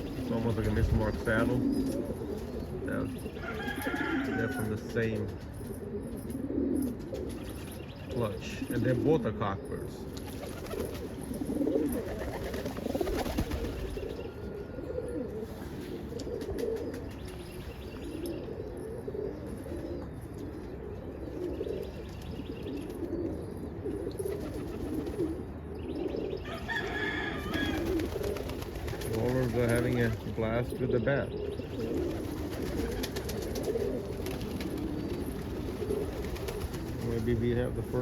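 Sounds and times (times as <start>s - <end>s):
pigeons cooing: 0.0s - 38.0s
wings flapping: 3.4s - 5.8s, 6.8s - 7.7s, 10.1s - 14.2s, 16.2s - 17.4s, 24.2s - 25.3s, 26.7s - 30.4s, 31.8s - 37.7s.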